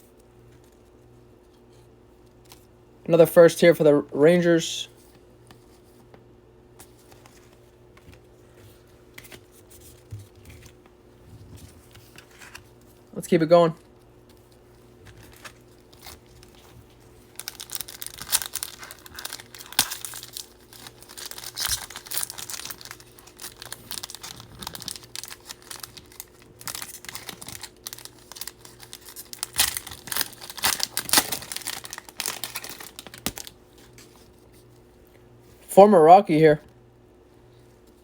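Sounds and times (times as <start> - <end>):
foil wrapper tearing and crinkling: 15.1 - 33.6.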